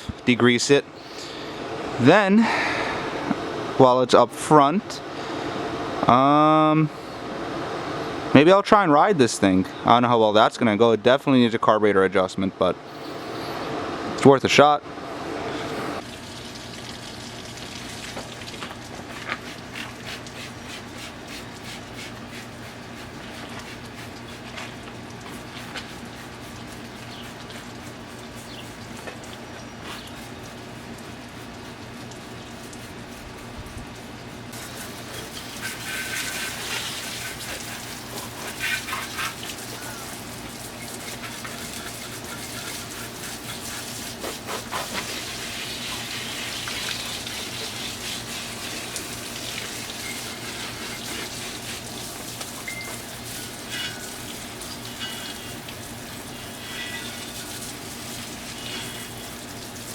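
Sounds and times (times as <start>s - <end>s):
hose water spraying and splashing: 15.6s - 59.9s.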